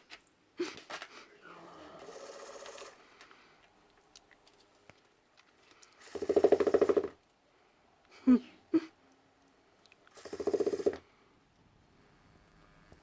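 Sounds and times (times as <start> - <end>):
toy ball buzzing and rattling: 6.0 - 7.2, 10.1 - 11.0.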